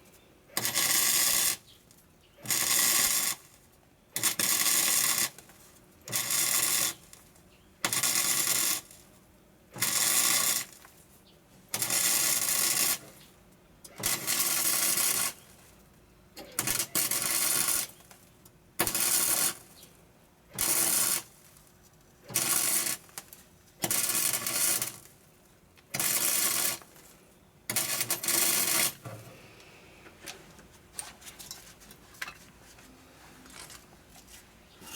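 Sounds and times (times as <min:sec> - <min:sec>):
welder crackling: 0:22.3 - 0:25.2, 0:25.9 - 0:27.0.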